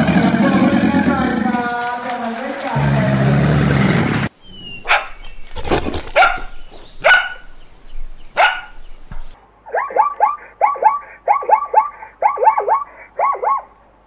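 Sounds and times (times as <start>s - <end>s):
animal barking: 2.8s - 9.1s, 9.7s - 13.8s
animal yelping: 4.5s - 7.6s, 8.3s - 8.8s.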